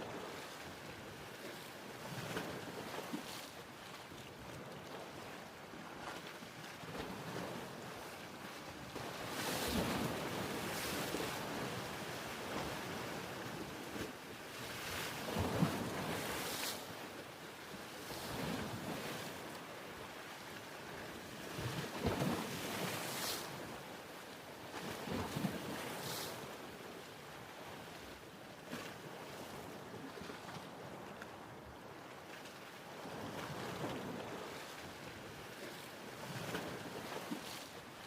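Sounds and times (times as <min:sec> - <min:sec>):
ocean waves washing in: 0:21.4 - 0:23.8, 0:25.0 - 0:26.8.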